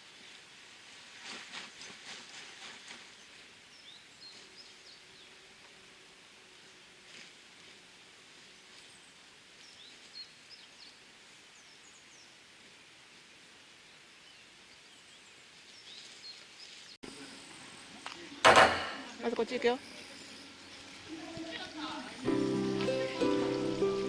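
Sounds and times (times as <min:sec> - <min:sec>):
steady outdoor hiss: 0:02.3 - 0:24.0.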